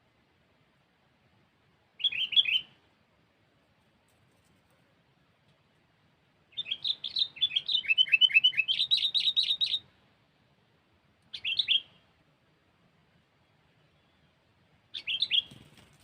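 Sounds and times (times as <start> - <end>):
bird chirping song: 2.0 - 3.0, 6.5 - 10.0, 11.2 - 12.2, 13.2 - 16.0.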